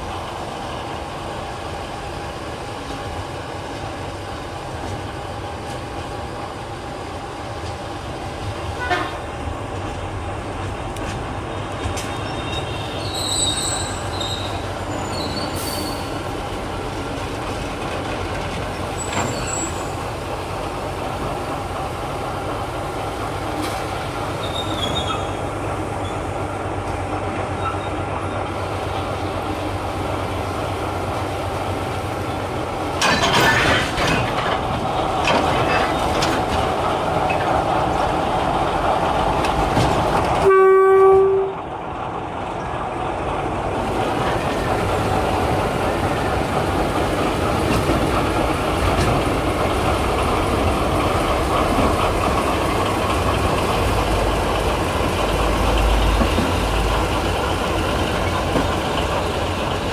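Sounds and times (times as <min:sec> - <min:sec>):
diesel locomotive running: 0:00.0 - 0:59.9
high-pitched wheel squeals: 0:12.1 - 0:16.2, 0:24.4 - 0:25.4.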